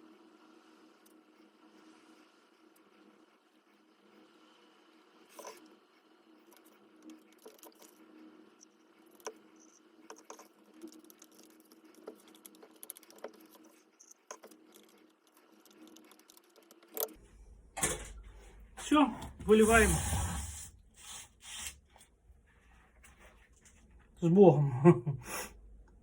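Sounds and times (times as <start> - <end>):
faint steady hum: 0.0 - 26.0
plaster being stirred in container: 19.4 - 21.9.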